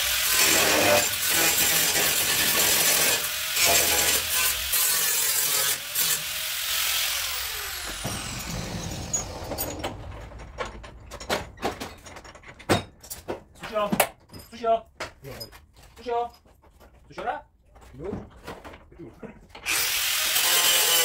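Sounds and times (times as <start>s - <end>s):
power tool hissing: 0.0s - 9.2s.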